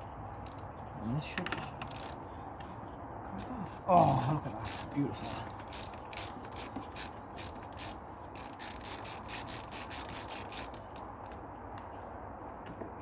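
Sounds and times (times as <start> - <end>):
ratchet wrench rasping: 1.8 - 2.2, 4.6 - 11.4.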